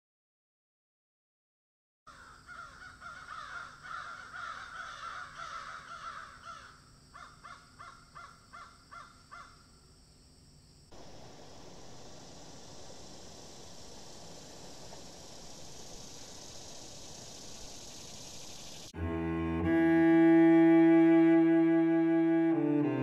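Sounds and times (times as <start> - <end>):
steady rushing noise: 10.9 - 18.9.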